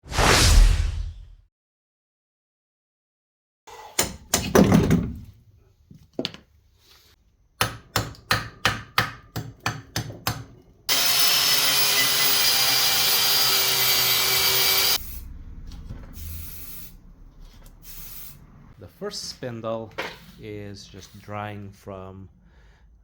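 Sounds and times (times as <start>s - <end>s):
power tool running: 10.9s - 15.3s.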